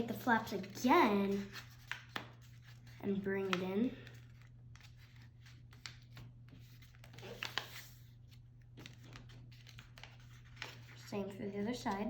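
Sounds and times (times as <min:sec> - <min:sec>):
low steady hum: 0:00.0 - 0:12.0
paper folding rustles: 0:00.0 - 0:12.0.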